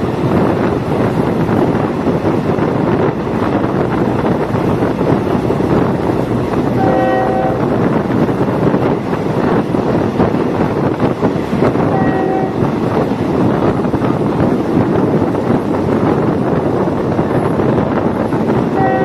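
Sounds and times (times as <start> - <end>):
railcar rolling and engine noise: 0.0 - 19.0
train horn blast: 6.7 - 7.8, 11.9 - 12.7, 18.8 - 19.0.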